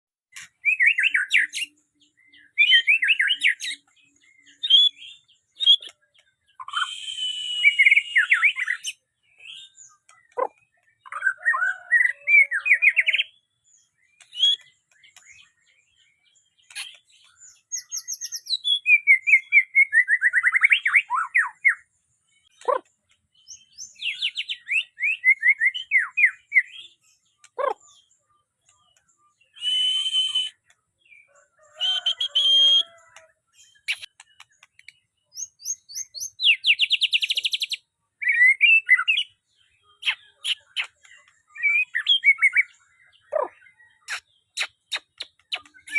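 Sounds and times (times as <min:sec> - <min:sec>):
bird whistles and trills: 0:00.3 - 0:13.4, 0:14.0 - 0:15.8, 0:16.5 - 0:45.9.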